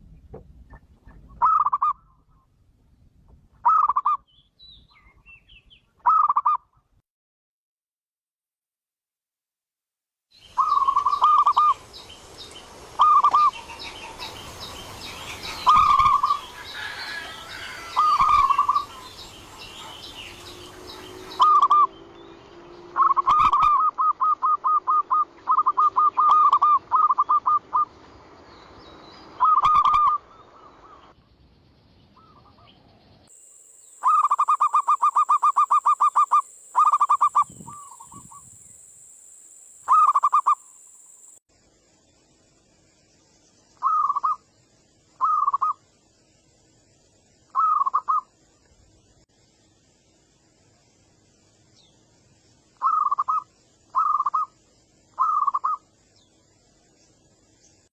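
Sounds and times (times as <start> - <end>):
dove cooing: 15.4 - 21.9, 23.0 - 27.9, 55.2 - 55.8.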